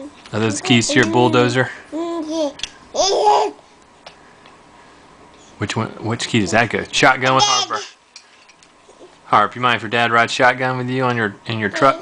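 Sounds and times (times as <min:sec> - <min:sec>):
baby babbling: 0:07.4 - 0:08.0.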